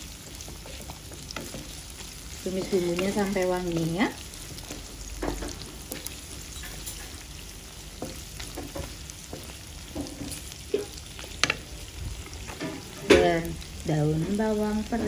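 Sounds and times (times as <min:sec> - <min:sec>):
food sizzling in hot oil: 0:00.0 - 0:15.0
spatula scraping and tapping pan: 0:00.3 - 0:11.7.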